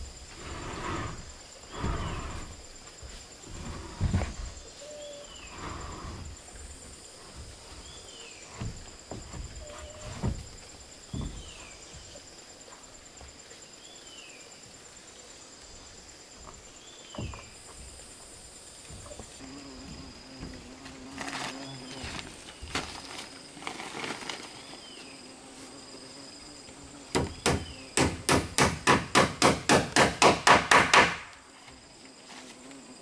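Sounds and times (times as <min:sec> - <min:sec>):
high insect drone: 0:00.0 - 0:33.0
knocks and thumps: 0:06.0 - 0:12.2, 0:16.4 - 0:20.7, 0:27.1 - 0:31.2.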